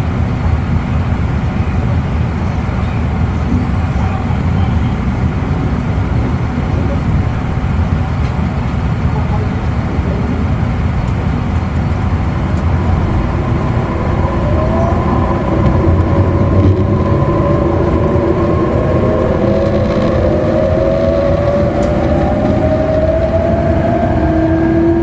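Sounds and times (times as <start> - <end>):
train rumbling on rails: 0.0 - 25.0
traction motor whine: 1.0 - 25.0.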